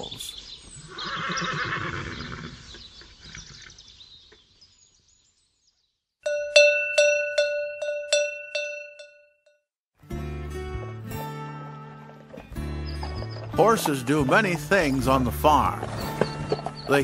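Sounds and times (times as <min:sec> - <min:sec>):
horse whinny: 0:00.8 - 0:03.8
cowbell strikes: 0:06.3 - 0:09.4.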